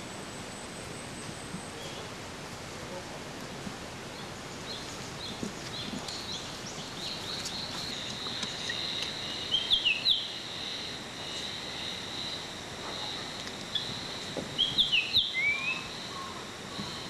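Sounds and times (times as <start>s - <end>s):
steady high buzz: 0.0s - 17.0s
birds chirping: 4.1s - 17.0s
loud gliding bird notes: 6.2s - 17.0s.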